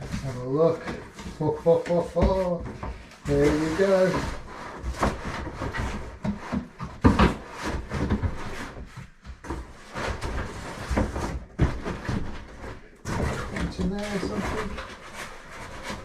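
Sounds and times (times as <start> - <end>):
knocks and scrapes: 0.0 - 16.0
packaging rustling: 10.0 - 16.0.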